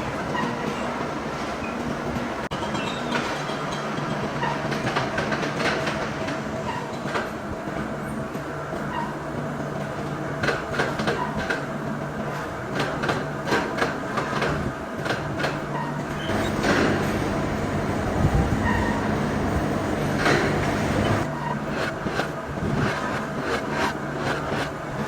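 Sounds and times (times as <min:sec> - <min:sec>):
machinery humming: 0:16.2 - 0:25.0.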